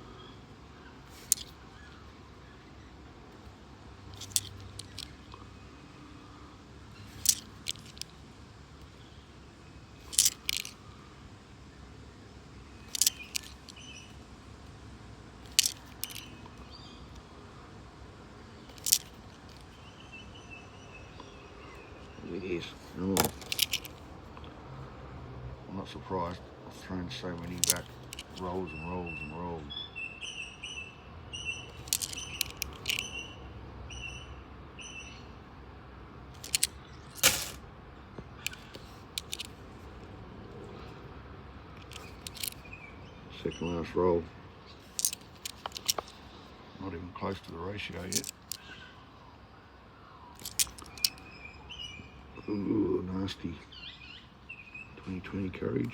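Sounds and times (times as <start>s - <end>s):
coins clinking: 1.1s - 1.5s, 4.1s - 5.2s, 7.1s - 8.1s, 10.0s - 10.8s, 12.9s - 13.8s, 15.4s - 16.3s, 18.7s - 19.6s, 23.2s - 24.0s, 27.4s - 28.4s, 31.8s - 33.0s, 36.4s - 37.6s, 39.2s - 39.5s, 41.8s - 42.6s, 44.8s - 46.2s, 48.0s - 48.6s, 50.4s - 51.2s
bird chirping: 12.6s - 14.2s, 15.7s - 17.3s, 27.4s - 35.3s, 53.4s - 55.2s.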